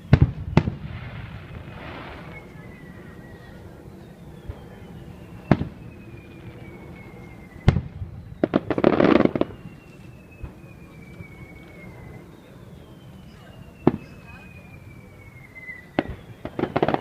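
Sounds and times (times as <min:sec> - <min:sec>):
crackling firework pops: 0:00.0 - 0:03.6, 0:04.4 - 0:12.2, 0:13.3 - 0:14.4, 0:15.5 - 0:17.0
firework bangs: 0:00.0 - 0:17.0.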